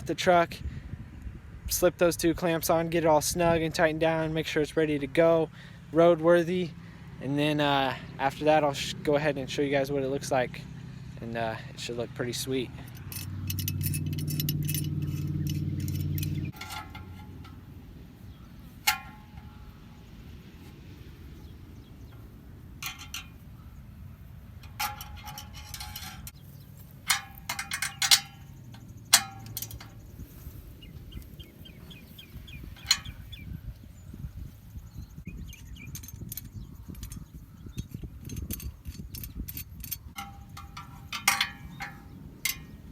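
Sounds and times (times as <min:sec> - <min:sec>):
steady low hum: 0:05.5 - 0:42.9
metal tools clinking: 0:12.2 - 0:20.0, 0:22.8 - 0:23.7, 0:24.6 - 0:33.4, 0:35.5 - 0:42.9
socket ratchet clicking: 0:12.9 - 0:17.2, 0:27.1 - 0:30.2.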